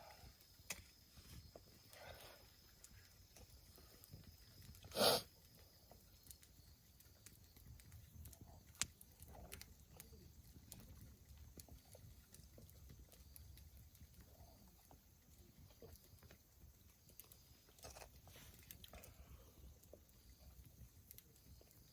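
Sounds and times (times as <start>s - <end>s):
wood fire crackling: 0.0s - 21.9s.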